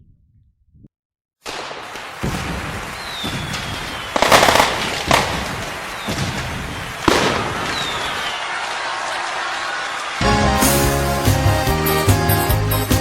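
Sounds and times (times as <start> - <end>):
fireworks banging: 1.4 - 9.3
fireworks whistling: 1.4 - 10.2.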